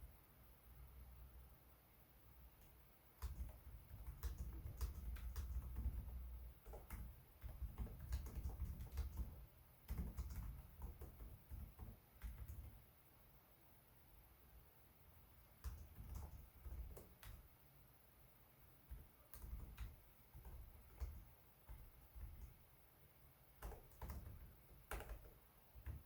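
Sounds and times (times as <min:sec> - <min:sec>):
laptop keyboard typing: 0:02.6 - 0:12.9, 0:15.5 - 0:17.5, 0:18.9 - 0:22.7, 0:23.5 - 0:26.0.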